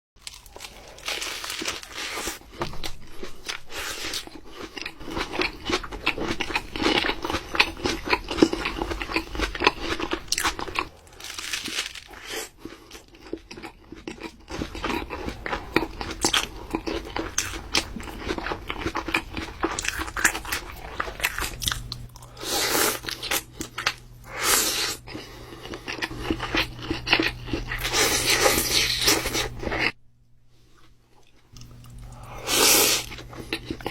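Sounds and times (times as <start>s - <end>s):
crunchy sandwich bites and chewing: 0.2s - 29.9s.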